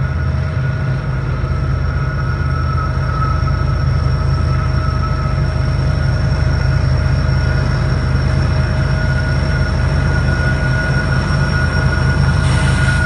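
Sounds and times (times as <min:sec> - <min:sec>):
thin ringing wheel squeal: 0:00.0 - 0:13.0
train cars rumbling: 0:09.9 - 0:13.0.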